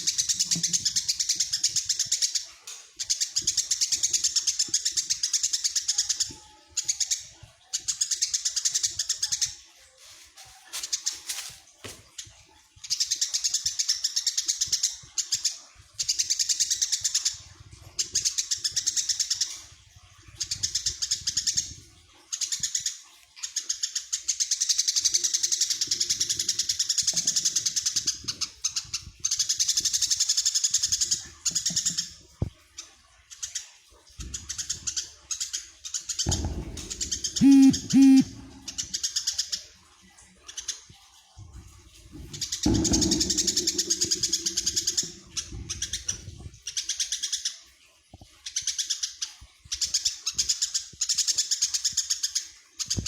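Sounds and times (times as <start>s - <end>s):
sparrow chirping: 36.3s - 38.8s.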